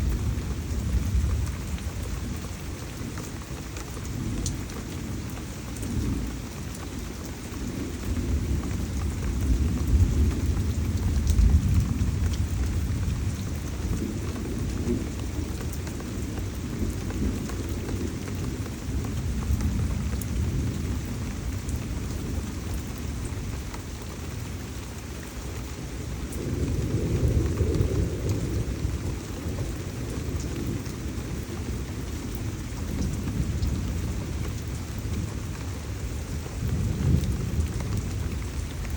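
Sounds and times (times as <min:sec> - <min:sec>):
heavy rain pouring: 0:00.0 - 0:38.9
thunder rolling: 0:26.4 - 0:30.8.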